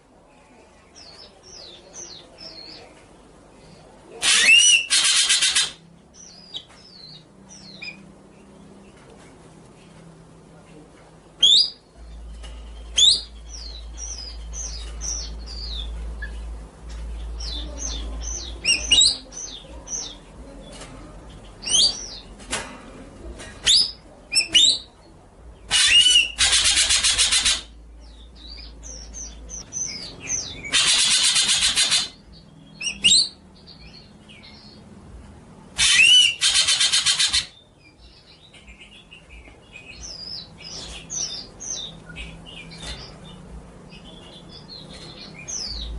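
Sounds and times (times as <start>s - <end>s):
songbird chirps and whistles: 11.4s - 16.4s.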